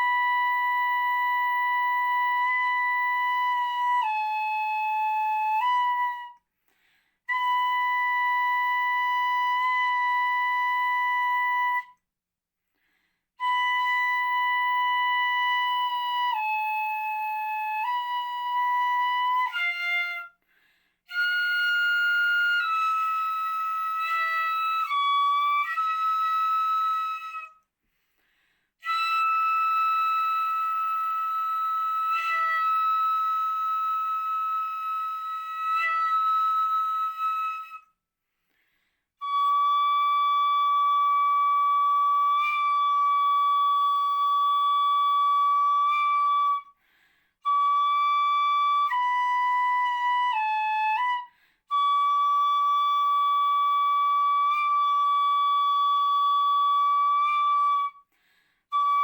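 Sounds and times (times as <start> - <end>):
bamboo flute playing high notes: 0.0 - 6.5, 7.3 - 12.0, 13.4 - 20.4, 21.1 - 27.6, 28.8 - 38.0, 39.2 - 46.8, 47.4 - 59.0.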